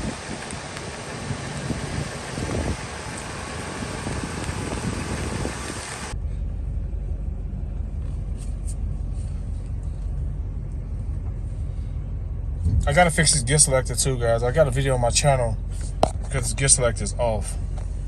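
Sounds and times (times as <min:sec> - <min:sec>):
wind noise on microphone: 0:00.0 - 0:06.2, 0:12.6 - 0:13.1
truck engine idling: 0:00.0 - 0:18.0.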